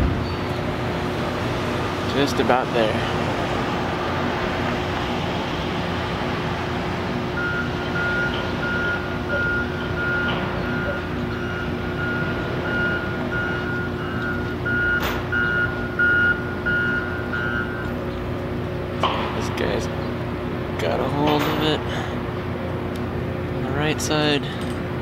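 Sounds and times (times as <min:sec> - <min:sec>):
machinery hum: 0:00.0 - 0:25.0
reversing alarm beeping: 0:07.3 - 0:18.1.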